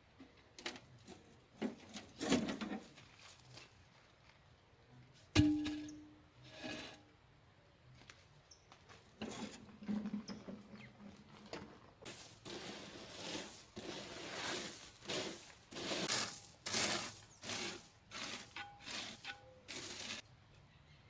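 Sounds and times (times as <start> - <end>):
scraping strokes in soil: 6.4 - 7.1, 9.1 - 20.3.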